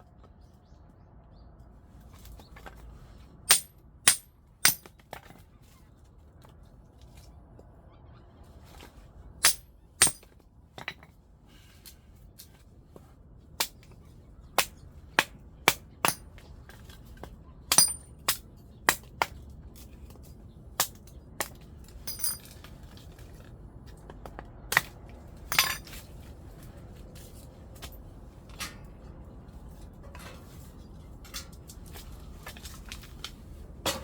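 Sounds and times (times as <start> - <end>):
metal knocking against metal: 3.5 - 4.9, 9.4 - 10.3, 17.7 - 18.1.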